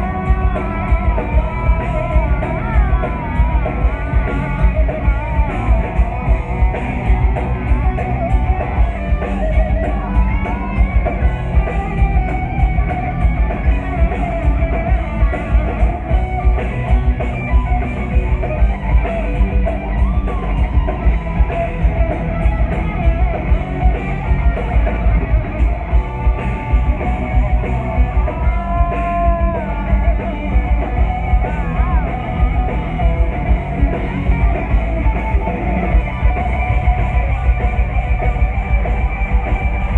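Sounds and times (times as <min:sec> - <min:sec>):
distorted electric guitars: 0:00.0 - 0:39.9
driving drum kit: 0:00.0 - 0:39.9
lead guitar melody: 0:00.0 - 0:39.9.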